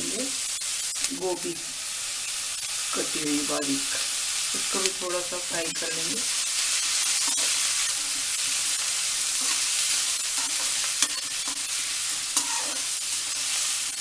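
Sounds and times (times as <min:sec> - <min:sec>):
vegetables sizzling in oil: 0:00.0 - 0:14.0
spatula stirring and scraping: 0:05.7 - 0:14.0.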